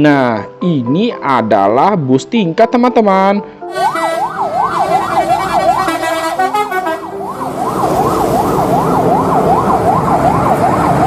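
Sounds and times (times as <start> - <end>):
fast yelping siren: 3.7 - 11.0.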